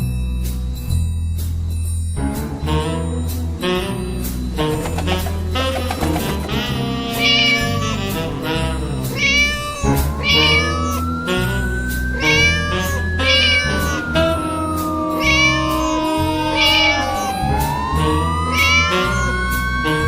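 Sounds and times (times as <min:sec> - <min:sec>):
cartoon-style music with bass: 0:00.0 - 0:20.0
long sliding tones: 0:04.7 - 0:19.6
cat meows: 0:04.8 - 0:11.5, 0:12.2 - 0:17.7, 0:18.5 - 0:19.4.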